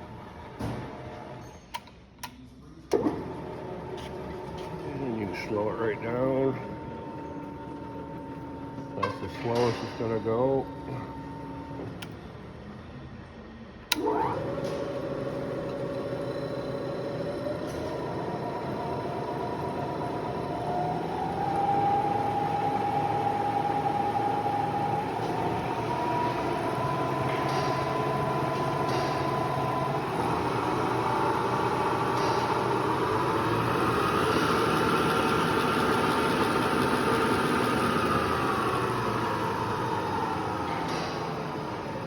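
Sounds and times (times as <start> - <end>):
drill press motor whine: 13.8 - 42.0.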